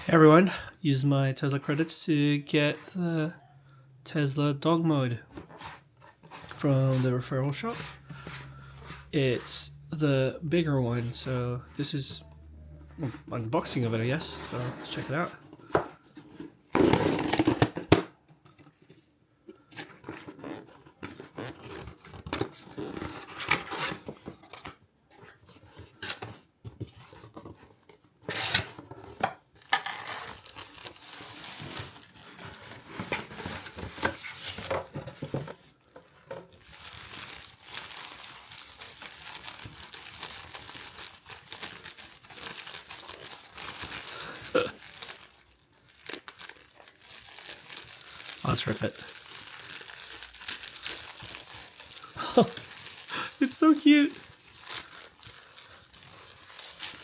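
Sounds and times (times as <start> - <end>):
cardboard and wrapping tearing: 13.8 - 18.1, 19.8 - 24.3, 28.2 - 57.0.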